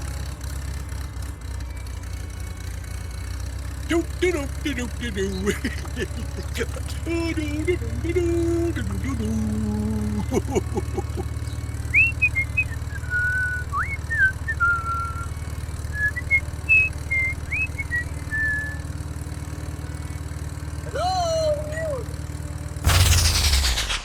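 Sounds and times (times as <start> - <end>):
small motor humming: 0.0 - 24.0
whistled gliding notes: 11.0 - 18.8, 22.9 - 24.0.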